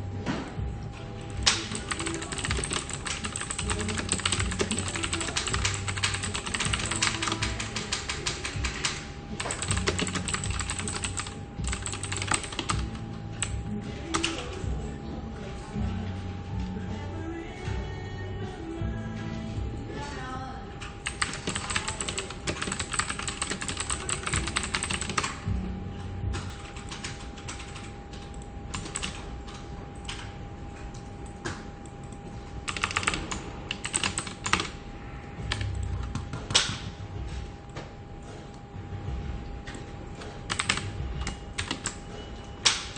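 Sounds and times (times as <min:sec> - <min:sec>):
keyboard typing: 0:01.2 - 0:14.7, 0:20.8 - 0:25.5, 0:26.3 - 0:34.8, 0:35.4 - 0:36.8, 0:39.6 - 0:42.9.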